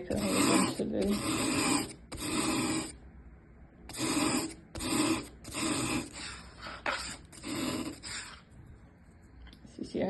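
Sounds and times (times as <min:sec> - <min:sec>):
charcoal stick scraping: 0:00.0 - 0:03.0, 0:03.9 - 0:08.5.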